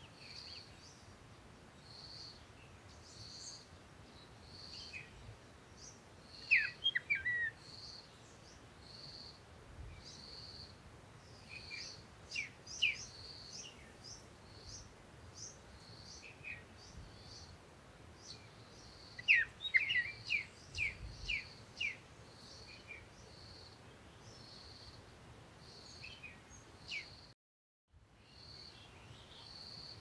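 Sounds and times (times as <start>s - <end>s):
birds chirping: 5.8s - 8.6s, 18.2s - 23.4s.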